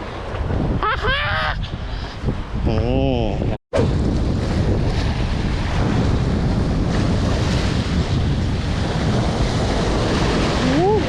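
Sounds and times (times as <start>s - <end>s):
wind buffeting microphone: 0.0s - 11.0s
water washing along shore: 3.8s - 11.0s.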